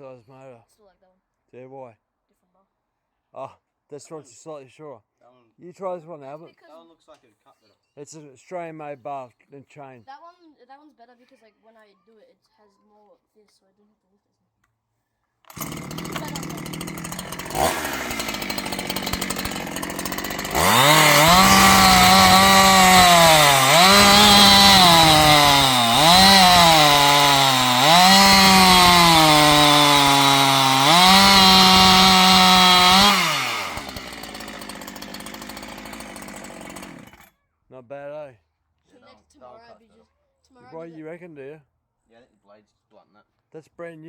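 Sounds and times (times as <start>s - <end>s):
chainsaw cutting wood: 15.5s - 37.3s.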